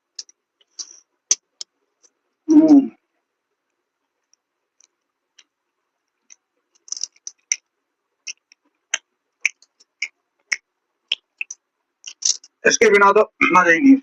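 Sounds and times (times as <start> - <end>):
person chewing food: 4.3 - 12.5.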